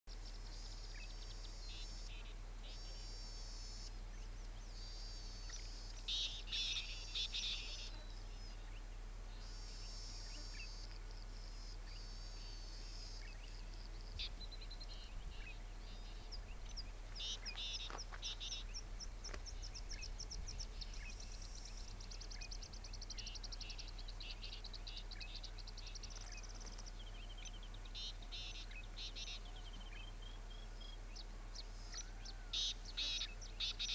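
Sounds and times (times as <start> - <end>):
birds singing and chirping: 0.1 - 33.9
steady low hum: 0.1 - 33.9.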